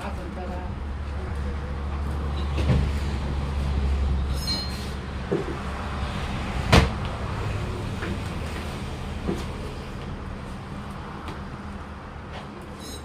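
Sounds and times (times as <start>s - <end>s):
brief high squeak: 4.3s - 5.0s, 12.8s - 13.0s.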